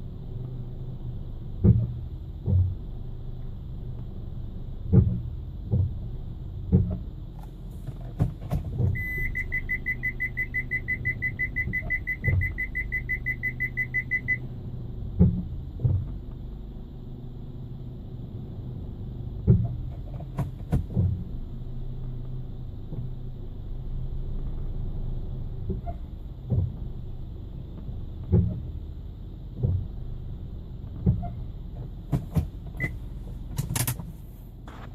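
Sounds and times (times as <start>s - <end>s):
car engine humming: 0.0s - 34.9s
dull brake knocks: 1.6s - 2.8s, 4.8s - 9.5s, 15.1s - 16.4s, 19.4s - 21.3s, 25.6s - 27.0s, 27.7s - 30.2s, 30.8s - 34.9s
parking sensor beeping rapidly: 8.9s - 14.4s, 32.8s - 33.0s.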